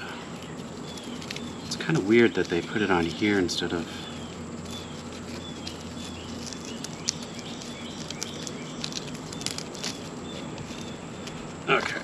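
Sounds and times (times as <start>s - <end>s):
bird chirping: 0.0s - 12.0s
faint steady hum: 0.0s - 12.0s.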